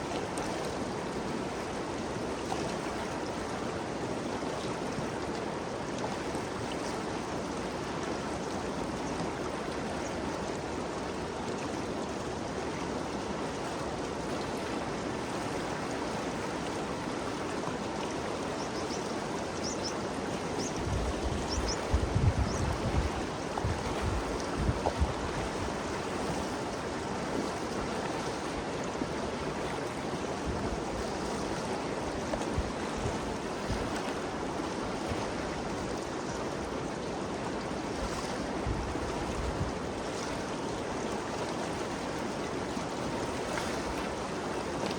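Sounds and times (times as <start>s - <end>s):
river flowing: 0.0s - 44.9s
wind buffeting microphone: 20.6s - 25.8s.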